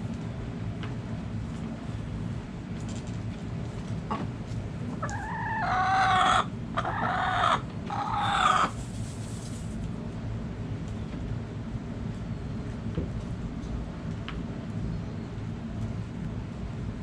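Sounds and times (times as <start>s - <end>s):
rooster crowing: 5.0s - 8.6s.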